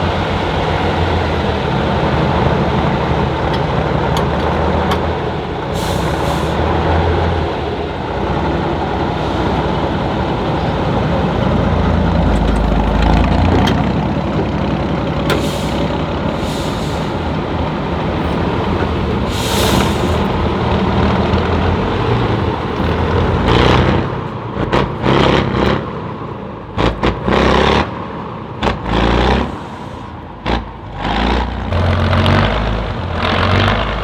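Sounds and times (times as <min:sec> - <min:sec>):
diesel truck engine rumbling: 0:00.0 - 0:34.0
air release hisses: 0:05.7 - 0:06.8, 0:15.3 - 0:20.5.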